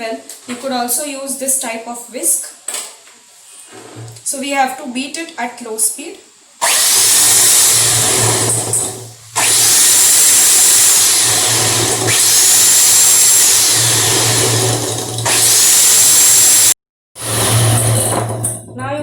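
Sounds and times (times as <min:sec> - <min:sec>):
electric hand beater whirring: 0:06.6 - 0:18.4.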